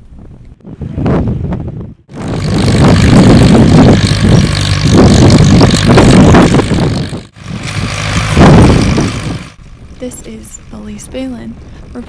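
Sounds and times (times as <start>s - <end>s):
tractor engine running: 2.1s - 11.3s.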